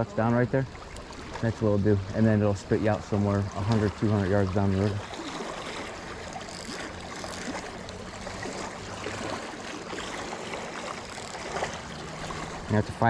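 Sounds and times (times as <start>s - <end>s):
river current rushing over rocks: 2.8s - 13.0s.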